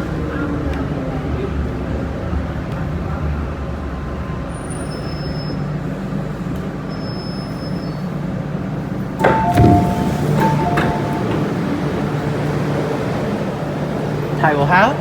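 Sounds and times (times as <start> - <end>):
electric train rumbling: 8.1 - 15.0
two-note descending chime: 9.2 - 12.4.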